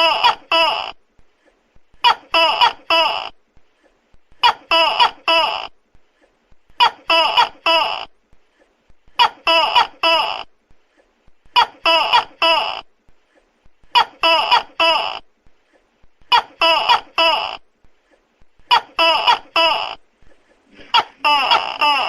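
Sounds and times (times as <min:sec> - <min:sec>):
gecko calling: 0:20.7 - 0:22.0.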